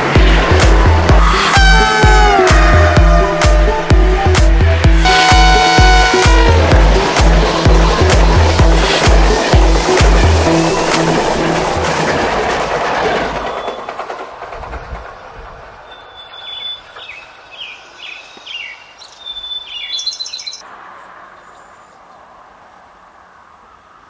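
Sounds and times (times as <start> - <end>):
train rushing past: 0.0 - 17.6
birds chirping: 15.1 - 20.6.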